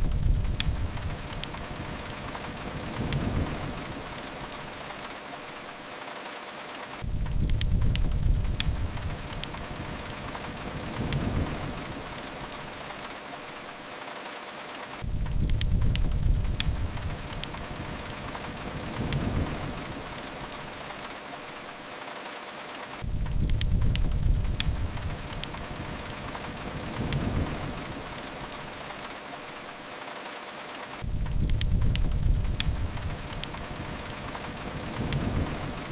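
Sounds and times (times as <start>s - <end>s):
low rumble: 0.0s - 1.7s, 31.0s - 35.9s
fireplace crackles: 0.0s - 35.9s
rain falling against a window: 0.0s - 35.9s.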